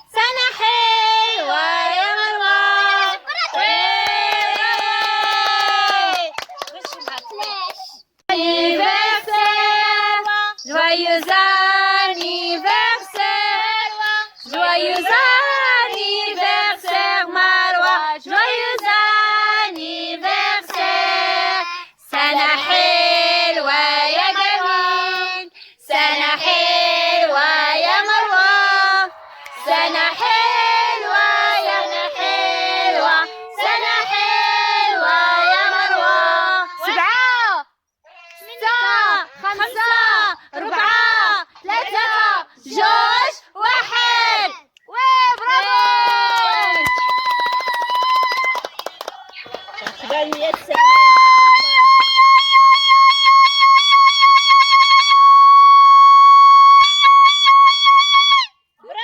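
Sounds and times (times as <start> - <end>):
children singing: 0.0 - 4.0, 8.4 - 37.0.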